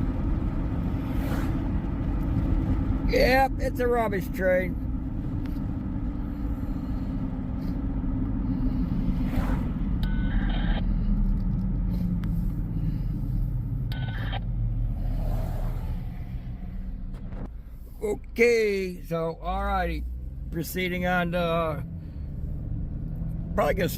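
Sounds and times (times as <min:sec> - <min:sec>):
car engine and road noise: 0:00.0 - 0:23.9.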